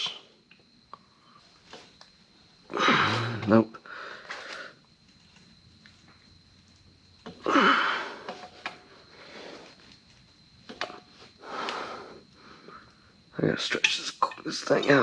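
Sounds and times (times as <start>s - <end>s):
heavy breathing: 2.7s - 4.8s, 7.4s - 9.8s, 11.3s - 13.1s.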